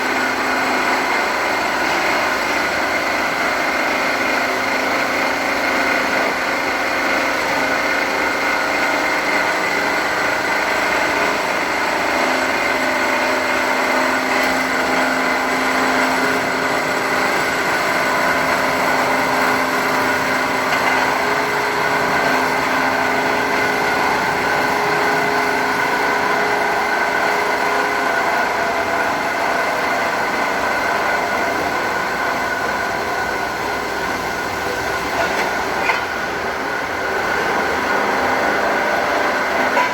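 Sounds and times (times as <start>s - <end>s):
cutting machine whining: 0.0s - 39.9s.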